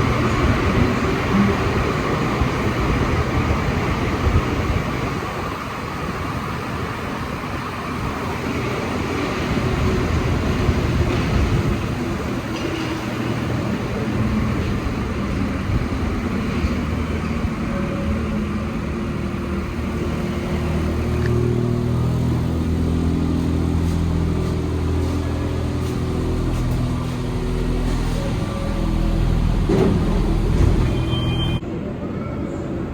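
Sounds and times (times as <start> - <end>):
metro train rumble: 0.0 - 32.9.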